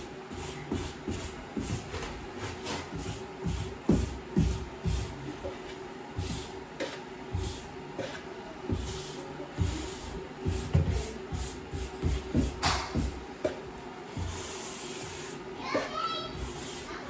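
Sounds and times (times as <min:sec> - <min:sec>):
grout float scraping tile: 0:14.2 - 0:17.0.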